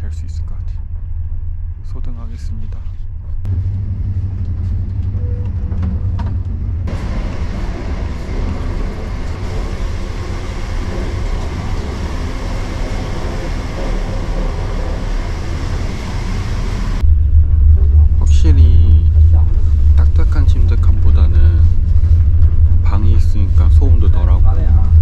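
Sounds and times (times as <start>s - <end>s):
train carriage rumble: 0.0s - 25.0s
hissing train running noise: 3.5s - 17.0s.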